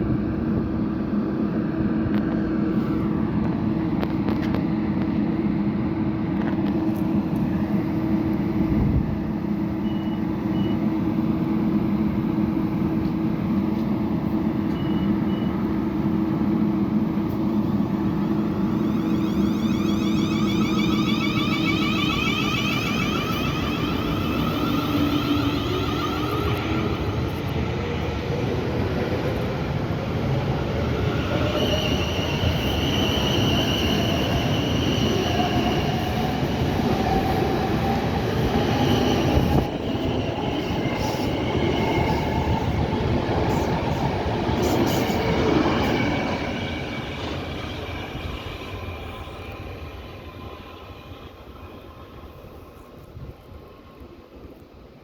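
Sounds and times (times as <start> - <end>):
rail noise: 0.0 - 55.0
train wheel squeal: 7.6 - 11.6, 14.3 - 28.2, 30.2 - 54.6
train traction motor whine: 14.6 - 27.6.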